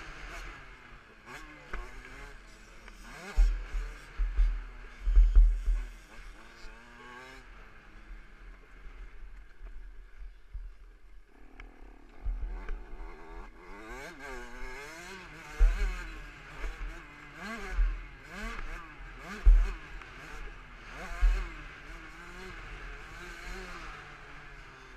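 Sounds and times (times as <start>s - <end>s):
dirt bike engine revving: 0.0s - 9.2s, 11.3s - 24.9s
heavy low thumps: 19.4s - 19.8s.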